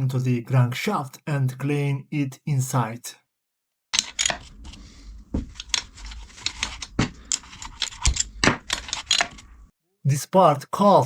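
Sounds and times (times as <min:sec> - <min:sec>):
metal parts scraping: 0:04.0 - 0:04.8, 0:05.6 - 0:09.6
metal parts clicking and clinking: 0:06.4 - 0:09.4.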